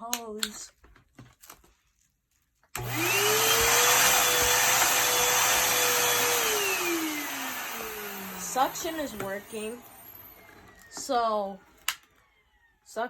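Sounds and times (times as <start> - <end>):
vacuum cleaner motor whine: 2.8 - 11.9.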